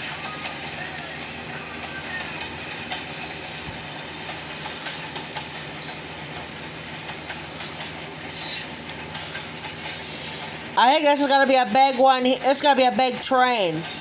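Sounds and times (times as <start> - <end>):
wheels clicking over rail joints: 0.0 - 14.0.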